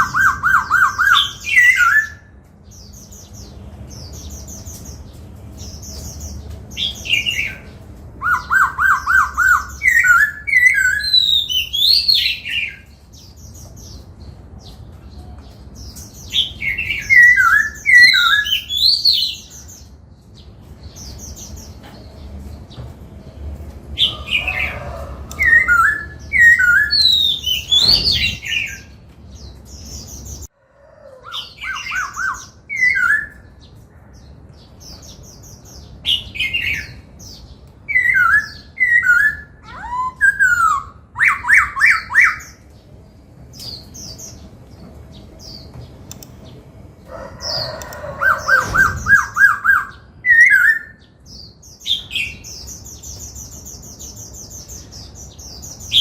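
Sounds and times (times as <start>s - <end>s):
bird singing whistled phrases: 0.0s - 2.3s, 8.2s - 12.8s, 16.9s - 19.3s, 25.4s - 28.9s, 37.9s - 42.4s.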